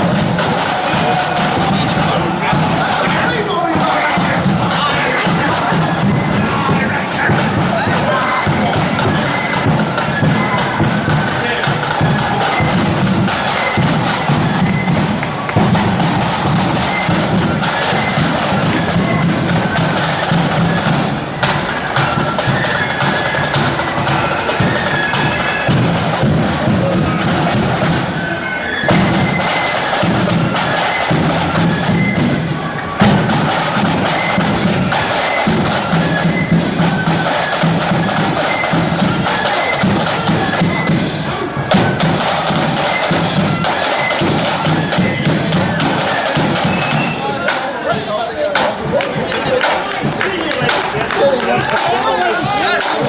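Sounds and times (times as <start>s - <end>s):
steady bass drum beat: 0.0s - 28.2s
high flute melody: 0.0s - 53.0s
rapid snare drum rolls: 0.0s - 53.0s.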